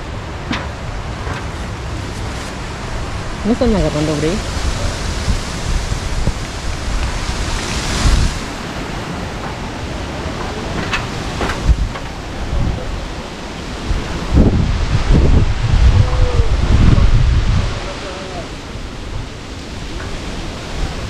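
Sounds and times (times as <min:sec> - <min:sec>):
storm wind and rain: 0:00.0 - 0:21.0
wind buffeting microphone: 0:00.0 - 0:21.0.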